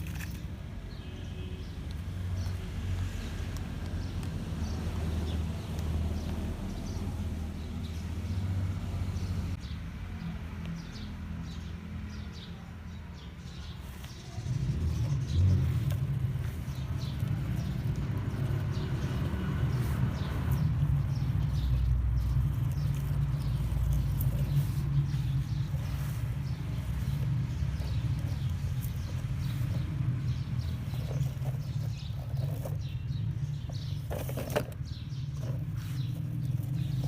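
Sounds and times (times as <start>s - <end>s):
off-road vehicle engine rumbling: 0.0s - 37.0s.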